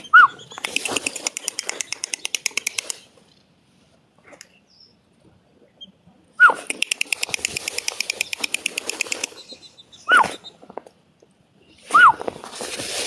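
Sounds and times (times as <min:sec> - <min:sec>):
bird rattling chatter: 0:00.5 - 0:03.1, 0:06.7 - 0:09.6.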